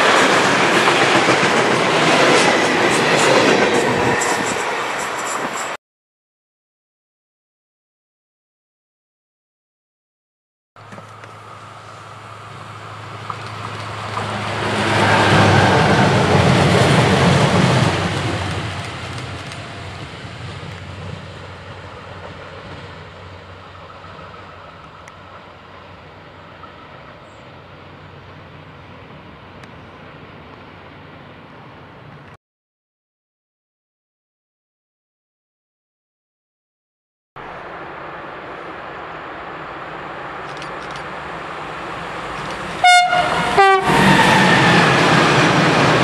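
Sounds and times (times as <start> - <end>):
train wheels on rails: 0.0 - 5.8, 10.8 - 32.4, 37.6 - 46.0
locomotive engine drone: 10.8 - 32.3.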